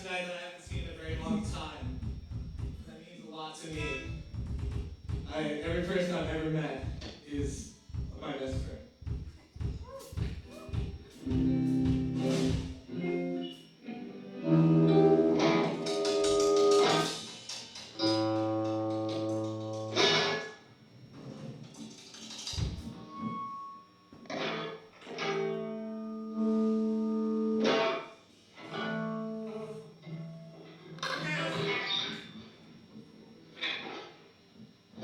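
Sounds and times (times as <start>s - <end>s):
guitar strumming chords: 9.7s - 20.8s, 22.6s - 34.2s.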